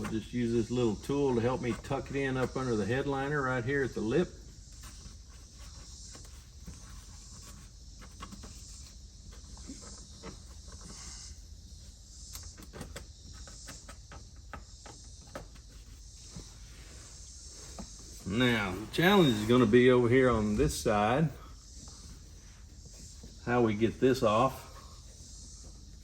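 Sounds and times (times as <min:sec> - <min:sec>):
steady high hiss: 0:15.5 - 0:26.0.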